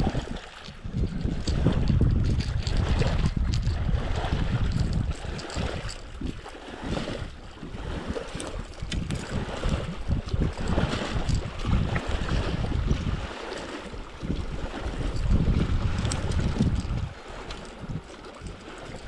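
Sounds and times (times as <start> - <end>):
wind buffeting microphone: 0.0 - 19.0
water hissing around kayak: 6.3 - 10.9.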